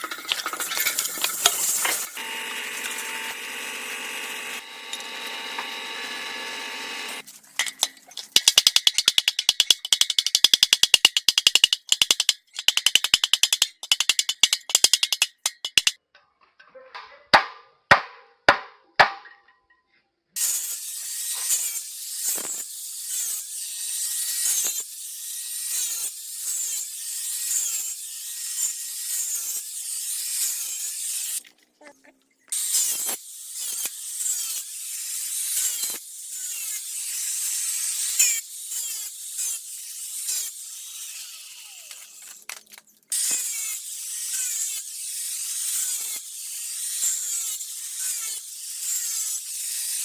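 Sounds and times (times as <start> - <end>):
machine hum: 2.0 - 7.2
fast sharp clicks: 8.2 - 16.0
sharp knocks: 17.4 - 19.4.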